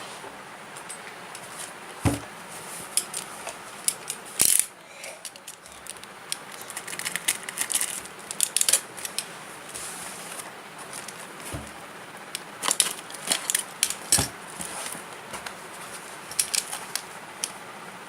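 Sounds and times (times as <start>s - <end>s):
thump: 2.0s - 2.3s
packaging being handled: 5.3s - 11.8s.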